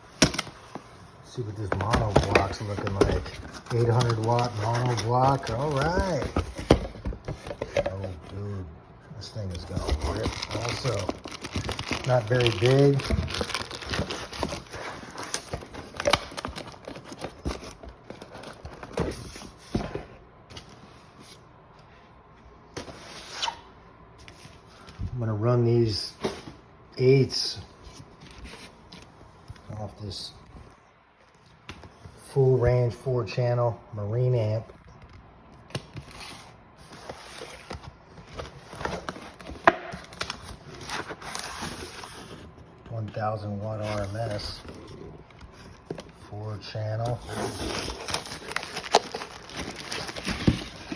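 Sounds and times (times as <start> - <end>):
packaging being handled: 1.3 - 8.4, 9.4 - 20.7, 47.0 - 50.9.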